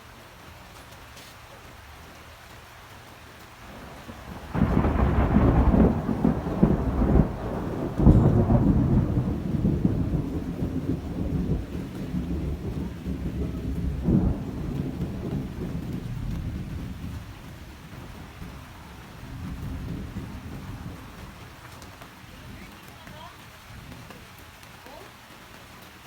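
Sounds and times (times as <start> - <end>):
low thunder rumble: 3.6 - 22.9
thunder clap: 3.7 - 24.2.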